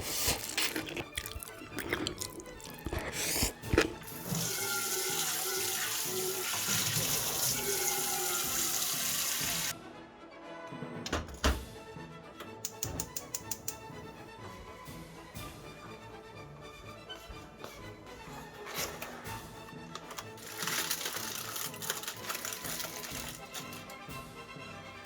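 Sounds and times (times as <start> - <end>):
water running from tap: 3.9 - 9.7, 20.4 - 23.9
kitchenware clicks and knocks: 11.1 - 11.7, 12.6 - 13.8.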